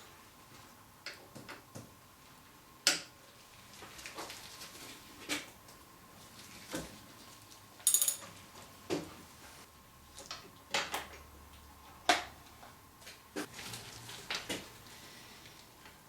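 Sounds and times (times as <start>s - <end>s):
ringing metallic clink: 7.9s - 8.2s
metal tools clicking and knocking: 7.9s - 8.3s.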